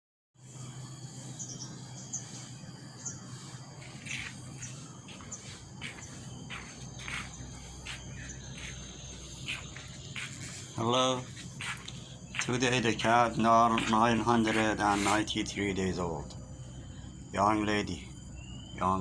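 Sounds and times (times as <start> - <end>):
faint low hum: 0.4 - 19.0
insects droning: 0.4 - 19.0
bird chirps and calls: 1.4 - 16.1.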